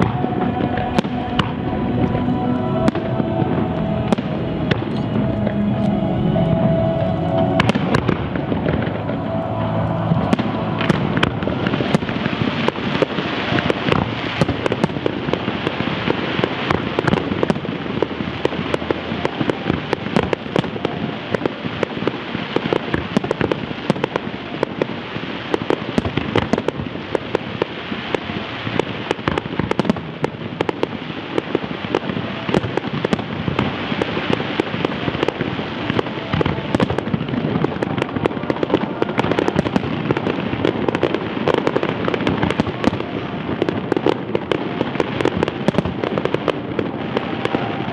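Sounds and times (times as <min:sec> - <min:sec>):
fireworks bangs: 0:00.0 - 0:47.9
fireworks crackling: 0:00.0 - 0:47.9.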